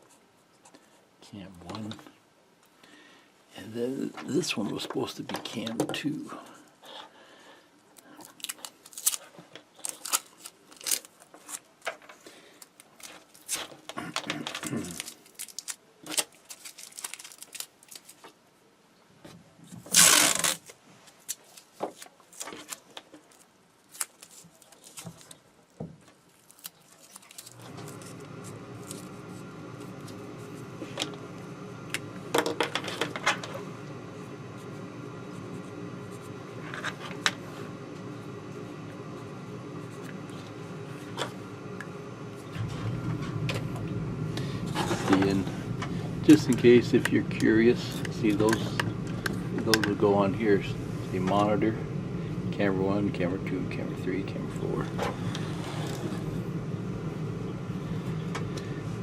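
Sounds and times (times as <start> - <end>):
steady electrical hum: 0.0 - 59.0
plastic parts and cables handled: 8.0 - 18.4, 19.6 - 30.2.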